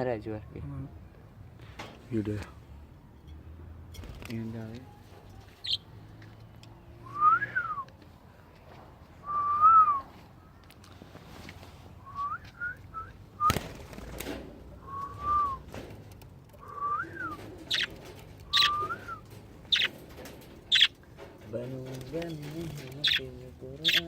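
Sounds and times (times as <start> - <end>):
high bird chirps: 5.6 - 5.9, 16.6 - 20.0, 20.7 - 21.0, 23.0 - 24.0
bird whistling: 14.8 - 15.6, 16.6 - 17.9, 18.5 - 19.9, 20.7 - 20.9, 23.0 - 23.2.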